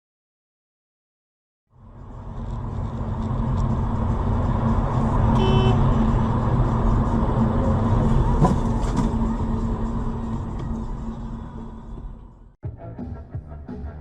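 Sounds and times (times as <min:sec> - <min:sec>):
car engine and road noise: 0:01.7 - 0:12.6.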